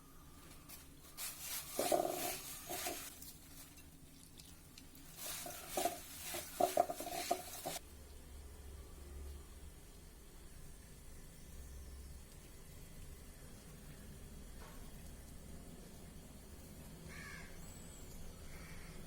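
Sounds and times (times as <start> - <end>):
spoon scraping in a pan: 1.1 - 3.9, 5.1 - 7.8.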